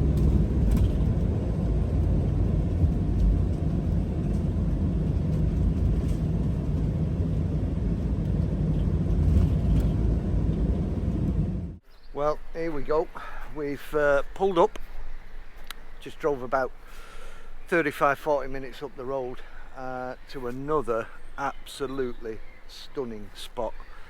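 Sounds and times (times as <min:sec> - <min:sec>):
engine and tyre rumble: 0:00.0 - 0:11.9.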